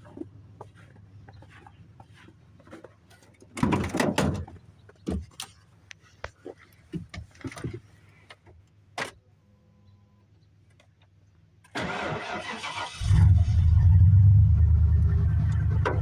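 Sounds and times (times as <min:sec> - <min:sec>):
engine cranking: 0:11.7 - 0:16.0.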